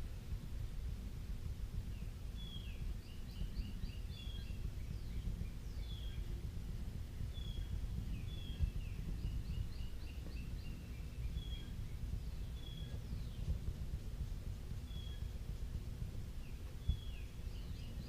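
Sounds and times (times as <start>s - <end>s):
steady low rumble: 0.0s - 18.0s
birds chirping: 1.7s - 18.0s.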